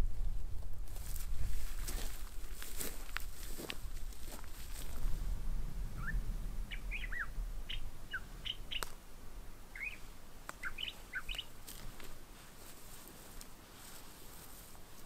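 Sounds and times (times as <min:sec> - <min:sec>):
songbirds chirping: 0:05.5 - 0:15.0.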